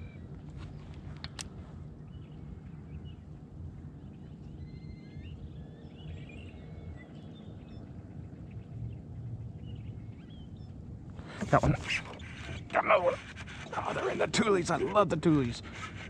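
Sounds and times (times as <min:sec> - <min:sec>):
low steady rumble: 0:00.0 - 0:16.0
birds chirping and whistling: 0:04.0 - 0:16.0.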